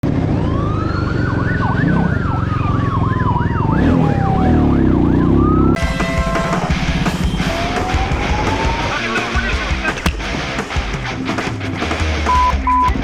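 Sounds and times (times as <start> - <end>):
police siren wailing: 0.0 - 10.1
police siren yelping: 0.3 - 10.1.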